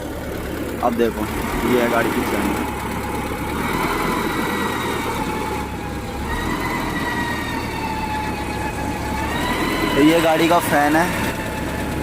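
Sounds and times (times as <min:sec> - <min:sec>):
thin engine whine: 0:00.0 - 0:12.0
truck engine running: 0:00.0 - 0:12.0.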